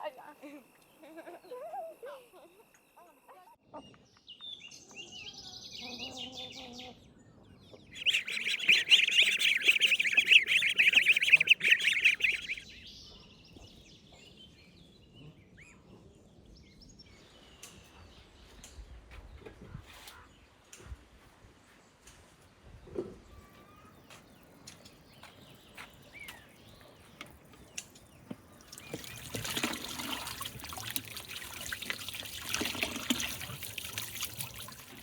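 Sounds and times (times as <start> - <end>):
birds chirping: 7.8 - 12.8, 23.8 - 35.0.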